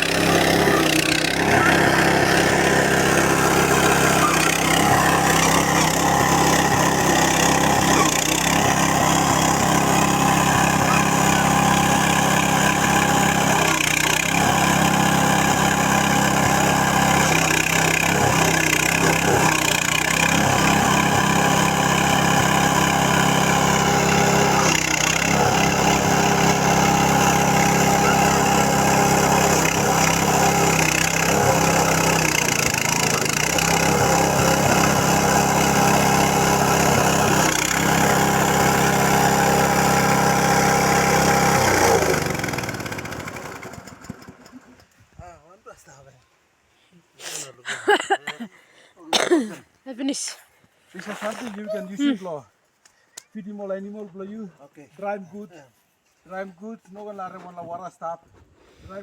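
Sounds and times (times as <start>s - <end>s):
grinding machine humming: 0.0s - 44.4s.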